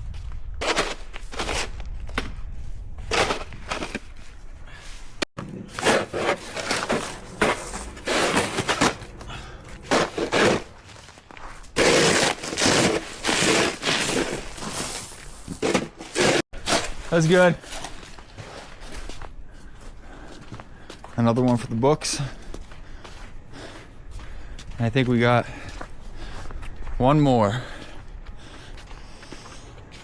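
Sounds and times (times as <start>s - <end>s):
snow shovel scraping pavement: 5.4s - 19.1s.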